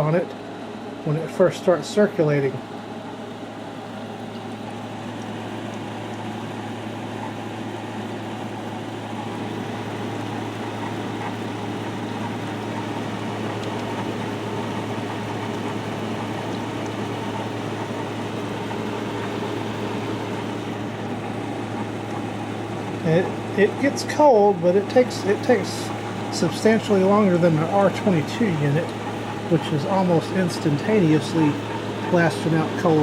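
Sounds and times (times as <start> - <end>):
air conditioner running: 0.0 - 33.0
compressor hum: 0.0 - 33.0
fan rushing: 0.0 - 33.0.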